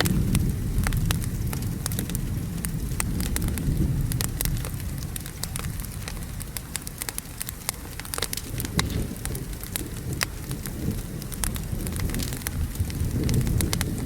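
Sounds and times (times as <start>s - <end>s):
thunder roll: 0.0s - 4.9s
rain rumbling: 0.0s - 14.0s
wood fire crackling and popping: 0.0s - 14.0s.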